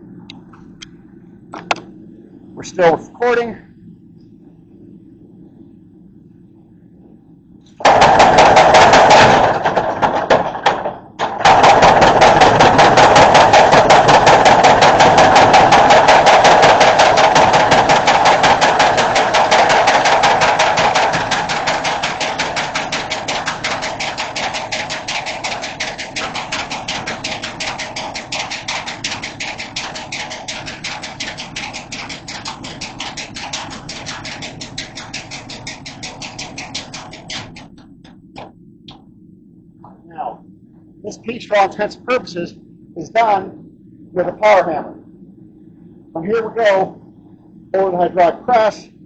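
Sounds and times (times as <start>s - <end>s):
power hammer striking hot metal: 7.8s - 38.5s.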